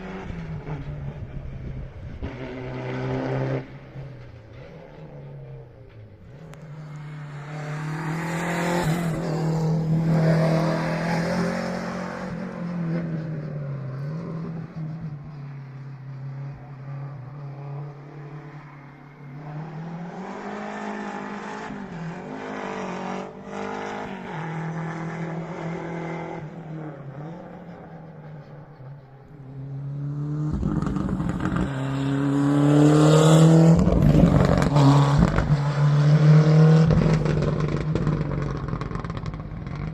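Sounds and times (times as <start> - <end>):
rally car engines at full throttle: 0.0 - 39.9
car engine revving while accelerating: 2.2 - 4.0, 6.8 - 14.9, 19.4 - 27.8, 29.8 - 39.9.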